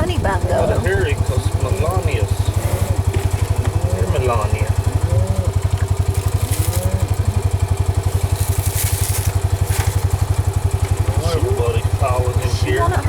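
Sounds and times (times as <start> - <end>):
vehicle engine idling: 0.0 - 13.0
rustling crunches: 4.8 - 11.1.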